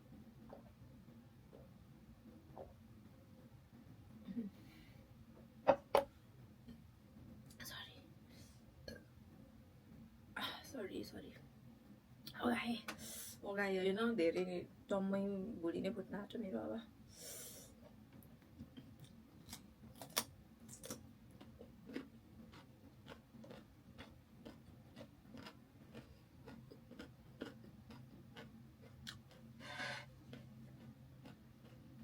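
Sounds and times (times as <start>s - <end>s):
mouth clicks and chewing: 18.6s - 29.5s.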